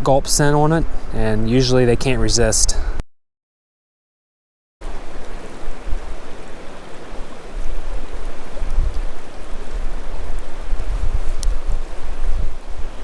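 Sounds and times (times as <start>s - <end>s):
wind rumbling on microphone: 0.0s - 3.0s, 4.8s - 13.0s
creek water rushing: 4.8s - 13.0s.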